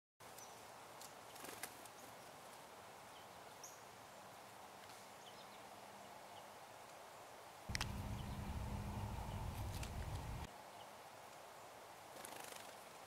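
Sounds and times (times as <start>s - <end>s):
high bird chirps: 7.7s - 10.5s
soft clicks: 7.7s - 10.5s.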